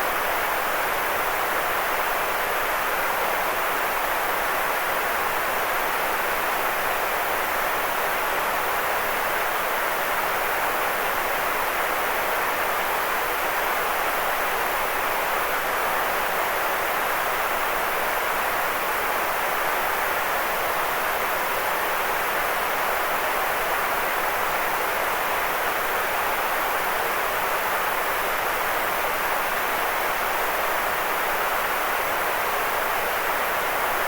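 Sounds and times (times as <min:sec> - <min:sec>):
white noise hiss: 0:00.0 - 0:34.0.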